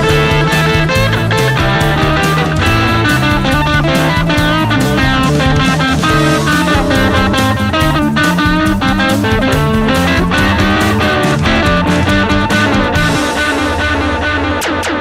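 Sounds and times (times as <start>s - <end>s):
bass guitar: 0.0s - 15.0s
drum kit: 0.0s - 15.0s
electric guitar lead: 0.0s - 15.0s.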